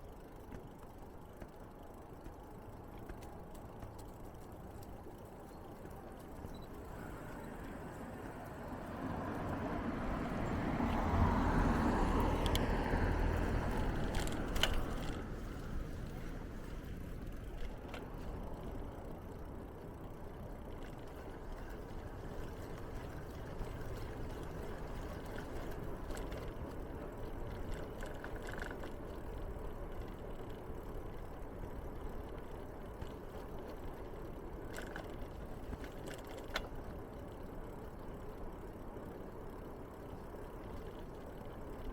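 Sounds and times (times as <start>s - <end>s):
low traffic rumble: 0.0s - 41.9s
faint clicks: 0.1s - 8.7s, 12.1s - 19.9s
vehicle passing by: 6.9s - 17.0s.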